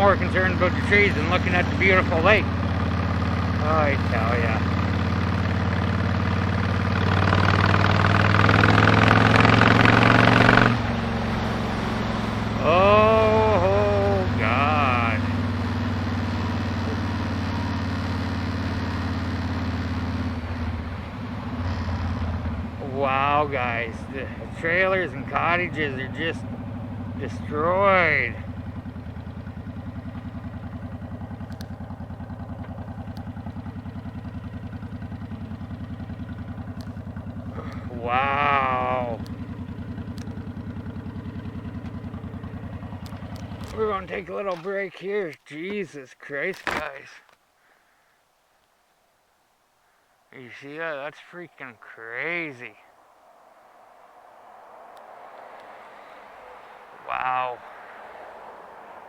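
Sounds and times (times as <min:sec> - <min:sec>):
motorcycle engine under throttle: 0:00.0 - 0:44.6
faint ticks: 0:31.4 - 0:33.6, 0:36.6 - 0:37.9, 0:39.2 - 0:40.5.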